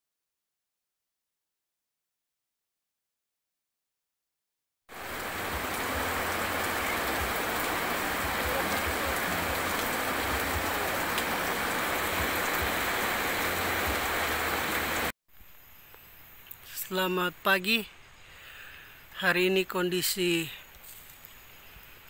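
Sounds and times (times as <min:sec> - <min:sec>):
rain on a metal roof: 0:04.9 - 0:15.1.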